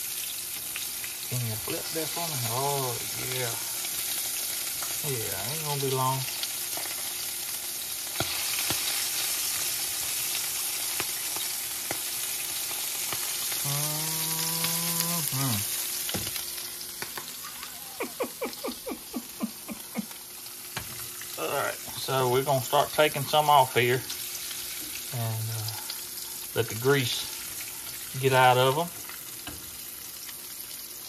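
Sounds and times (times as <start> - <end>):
food sizzling in a pan: 0.0 - 31.0
person's drawn-out voice: 13.6 - 15.7, 17.4 - 20.1.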